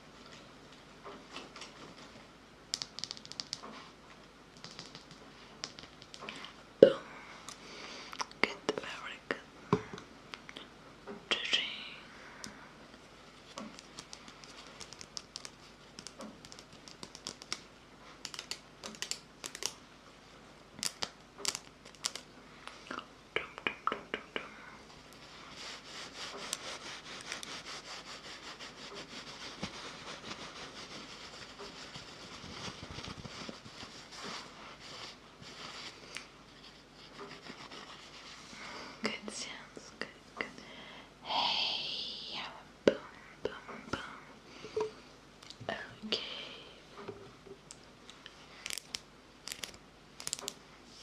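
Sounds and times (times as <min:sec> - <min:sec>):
soft rustling: 0:24.9 - 0:39.5.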